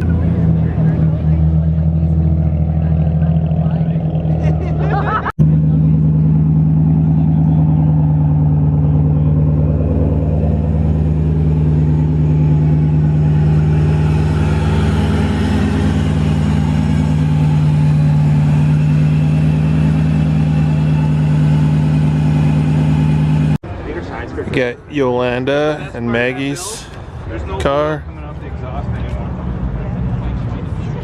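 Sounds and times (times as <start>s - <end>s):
low cabin drone: 3.9s - 23.6s.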